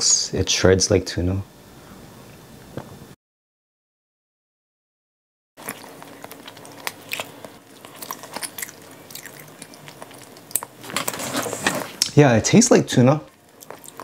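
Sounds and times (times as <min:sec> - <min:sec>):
person chewing with wet mouth clicks: 0:05.6 - 0:10.8, 0:13.3 - 0:14.0.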